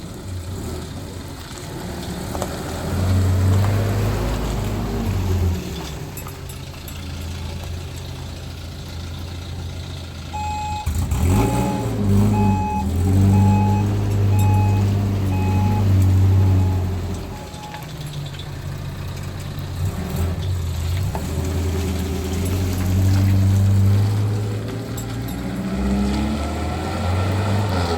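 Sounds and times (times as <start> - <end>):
vehicle engine revving: 0.0 - 6.2, 7.2 - 18.1, 19.6 - 27.9
electronic beeps: 10.4 - 17.9.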